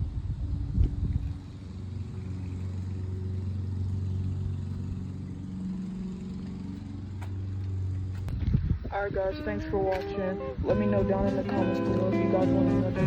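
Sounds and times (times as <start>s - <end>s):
mini bike engine puttering: 0.0s - 8.6s.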